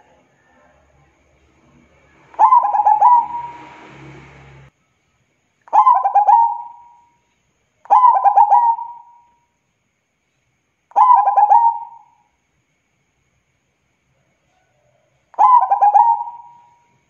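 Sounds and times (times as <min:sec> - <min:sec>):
dove cooing: 0:02.3 - 0:03.7, 0:05.7 - 0:07.0, 0:07.9 - 0:09.2, 0:11.0 - 0:12.2, 0:15.4 - 0:16.8.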